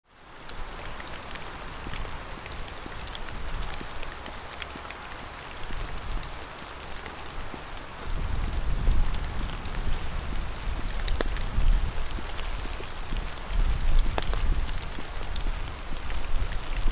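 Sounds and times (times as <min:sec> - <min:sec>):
rain falling: 0:00.0 - 0:16.9.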